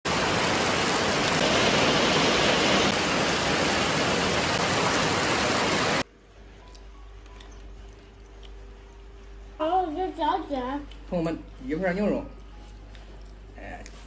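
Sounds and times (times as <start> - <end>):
heavy rain pouring: 0.0 - 6.1.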